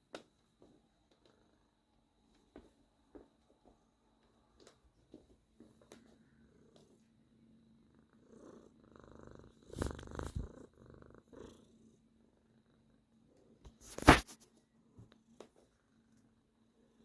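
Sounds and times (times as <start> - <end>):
cat purring: 6.0 - 13.7.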